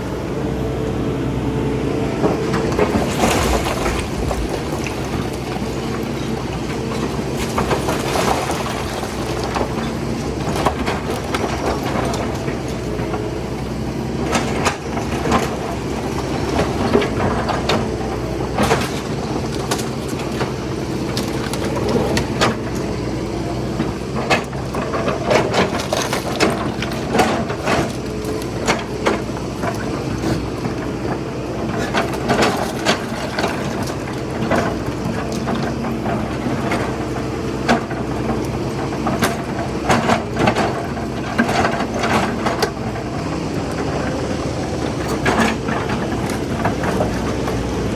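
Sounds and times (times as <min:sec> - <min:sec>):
excavator diesel engine running: 0:00.0 - 0:47.9
debris cracking and knocking: 0:02.5 - 0:12.7.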